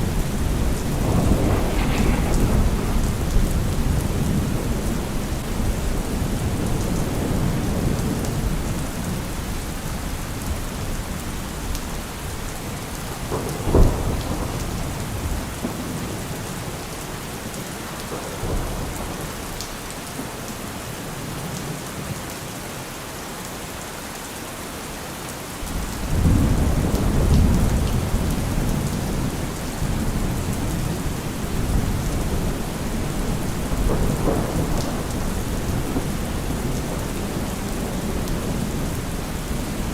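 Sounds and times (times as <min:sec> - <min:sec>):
heavy rain falling: 0:00.0 - 0:39.9
deep low rumbles: 0:00.2 - 0:05.2.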